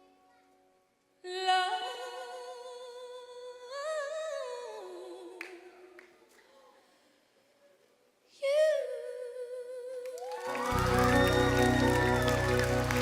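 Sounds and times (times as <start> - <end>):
woman singing unaccompanied: 1.2 - 6.0, 8.3 - 12.1.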